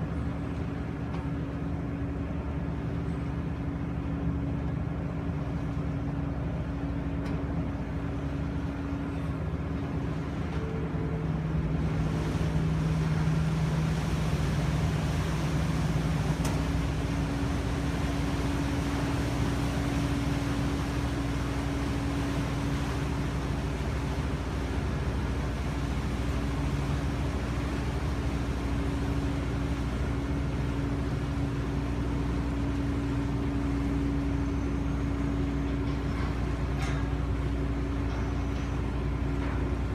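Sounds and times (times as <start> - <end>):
ferry engines droning: 0.0 - 39.9.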